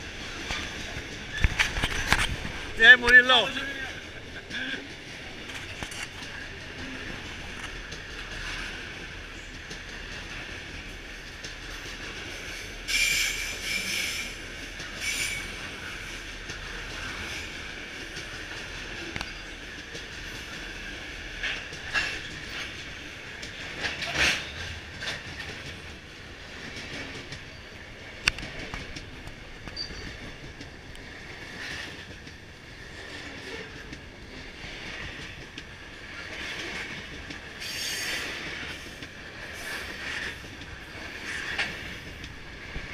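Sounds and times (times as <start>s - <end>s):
high wheel squeal: 15.0s - 15.6s.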